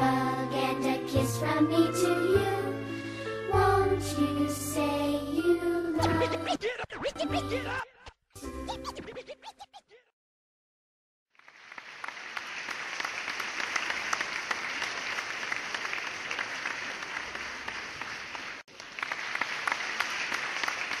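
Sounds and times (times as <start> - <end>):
crowd applauding: 11.4 - 21.0.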